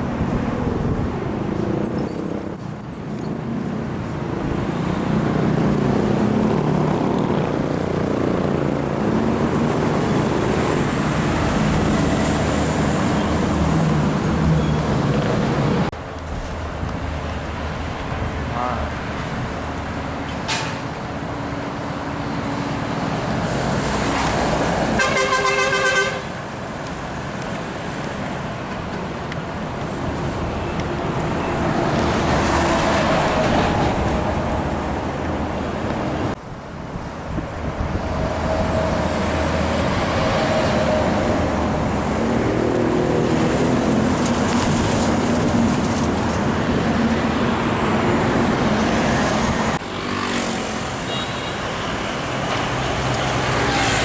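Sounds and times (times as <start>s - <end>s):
heavy road traffic passing: 0.0s - 54.0s
vehicle horn: 25.0s - 26.4s, 51.0s - 51.8s.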